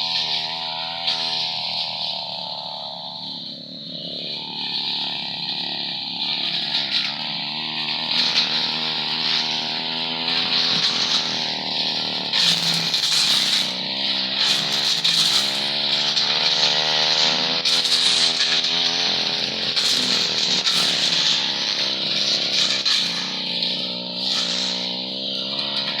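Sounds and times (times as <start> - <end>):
brush cutter engine at high revs: 0.0 - 26.0.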